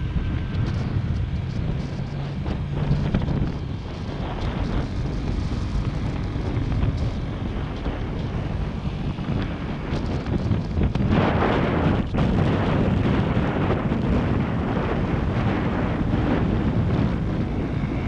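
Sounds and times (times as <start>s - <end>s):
motorcycle engine running: 0.0s - 18.0s
wind buffeting microphone: 0.0s - 18.0s.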